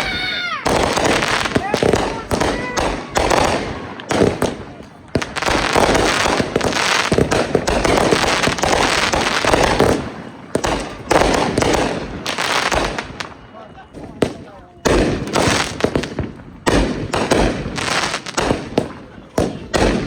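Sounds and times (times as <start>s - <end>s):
fireworks bangs: 0.0s - 20.0s
fireworks crackling: 0.0s - 20.0s.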